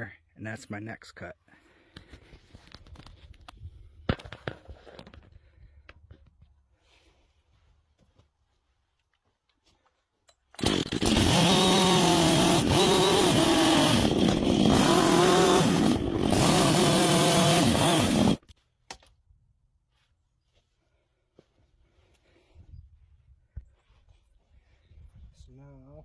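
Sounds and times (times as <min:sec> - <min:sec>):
chainsaw cutting log: 0:10.6 - 0:18.5.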